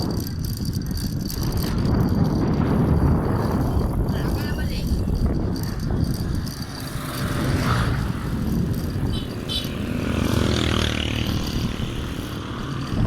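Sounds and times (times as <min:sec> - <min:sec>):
wind buffeting microphone: 0:00.0 - 0:13.0
vehicle engine passing by: 0:06.7 - 0:13.0.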